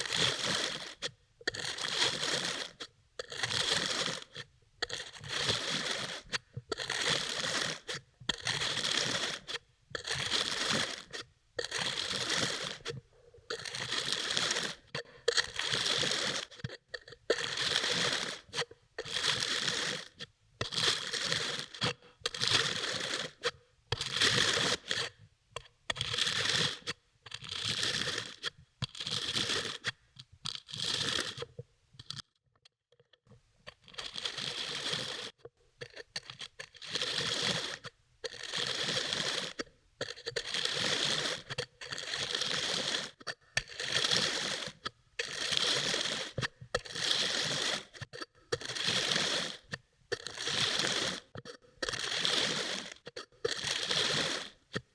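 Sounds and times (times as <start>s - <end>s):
knife cutting kinetic sand: 33.8s - 54.9s.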